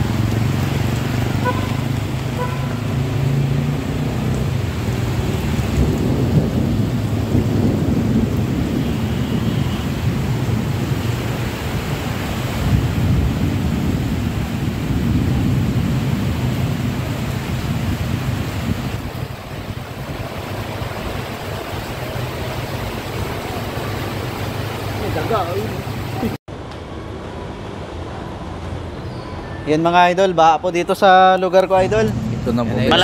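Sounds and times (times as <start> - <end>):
heavy rain pouring: 0.0 - 26.4.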